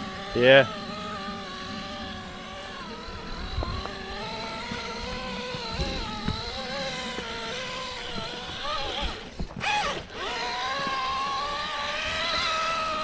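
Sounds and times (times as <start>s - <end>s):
electric motor whining: 0.0s - 13.0s
toy car knocking against rock: 3.4s - 13.0s.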